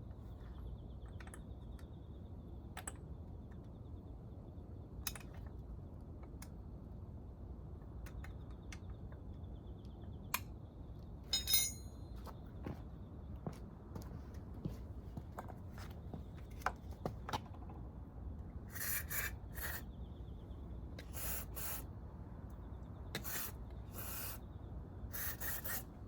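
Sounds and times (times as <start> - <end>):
short hissing bursts: 21.1 - 21.9, 23.2 - 24.4.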